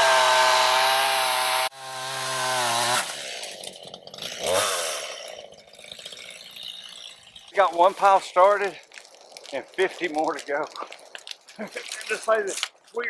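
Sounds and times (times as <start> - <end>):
chainsaw cutting: 0.0 - 8.7.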